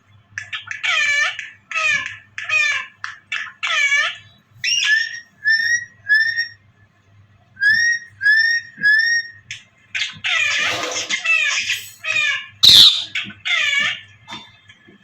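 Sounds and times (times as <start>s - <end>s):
parrot calling and whistling: 11.4s - 13.3s.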